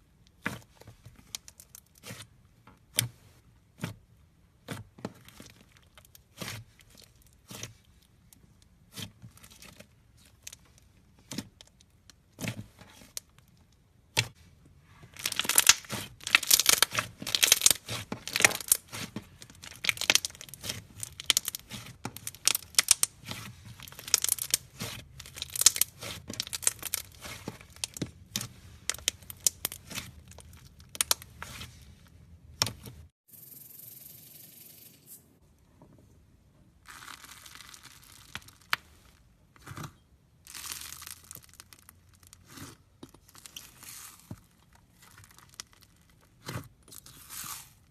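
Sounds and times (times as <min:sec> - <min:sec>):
slime crackling and popping: 0:15.2 - 0:31.7, 0:36.8 - 0:39.1, 0:39.7 - 0:47.7.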